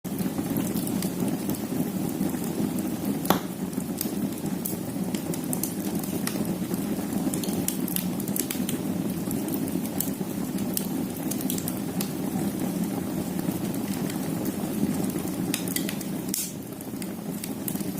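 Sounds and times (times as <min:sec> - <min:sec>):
wood fire crackling: 0:00.1 - 0:17.9
loud pop of burning log: 0:03.2 - 0:03.6, 0:15.5 - 0:16.6.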